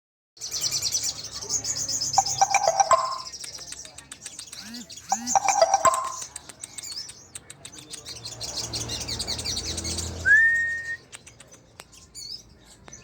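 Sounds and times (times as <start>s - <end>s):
sunbird twittering chirps: 0.4s - 7.4s.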